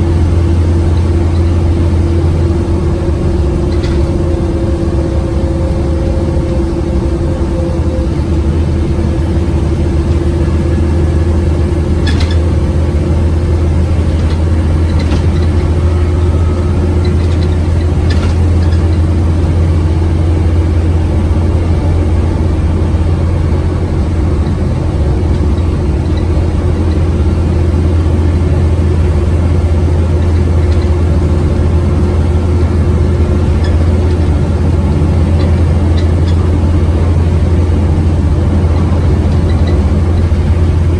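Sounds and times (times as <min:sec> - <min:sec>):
bus diesel engine droning: 0:00.0 - 0:40.9.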